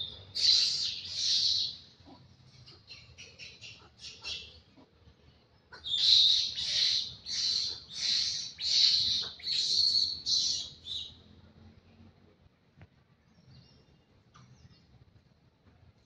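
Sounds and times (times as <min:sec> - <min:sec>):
bird high raspy calls: 0:00.0 - 0:05.0, 0:05.7 - 0:11.2.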